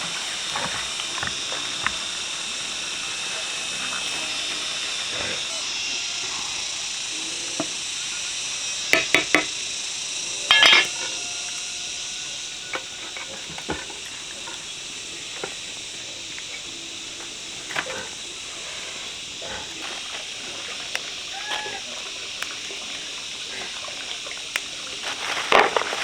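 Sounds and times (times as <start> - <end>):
steady hiss: 0.0 - 26.0
dishes and utensils clinking: 10.5 - 11.1.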